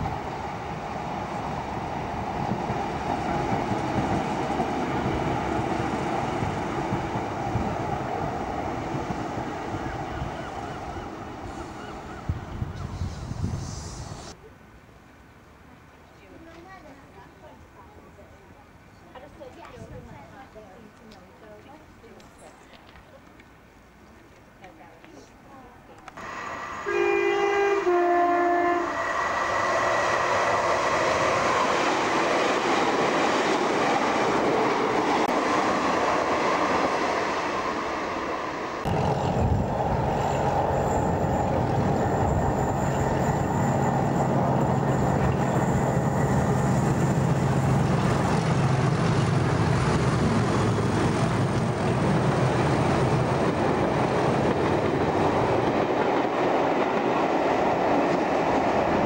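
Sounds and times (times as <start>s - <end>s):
train passing with rushing rumble: 0.0s - 14.4s, 26.1s - 59.0s
diesel train engine drone: 26.0s - 59.0s
two-tone train horn: 26.2s - 29.2s.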